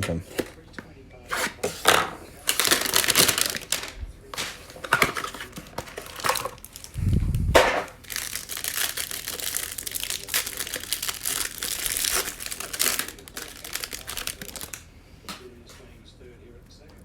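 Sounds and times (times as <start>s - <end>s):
packaging crinkling and tearing: 1.4s - 14.8s.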